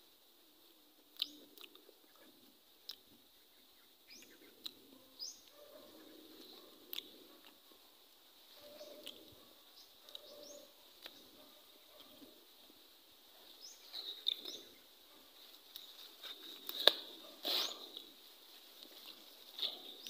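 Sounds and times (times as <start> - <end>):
faint bird chirps: 3.3 - 7.1, 8.5 - 12.2
leaves and stems rustling: 6.2 - 20.0
sharp crack: 16.6 - 18.0.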